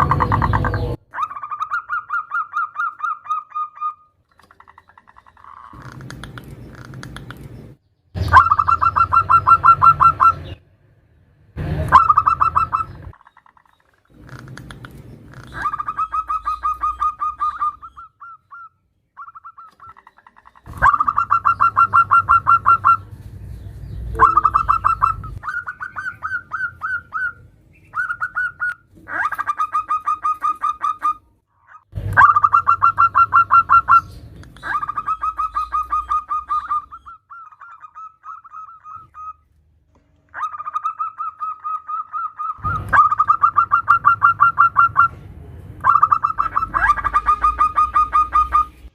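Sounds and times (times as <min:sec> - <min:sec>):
dove calling pulsed notes: 0:00.0 - 0:07.6, 0:08.2 - 0:10.7, 0:11.6 - 0:39.4, 0:40.3 - 0:48.9.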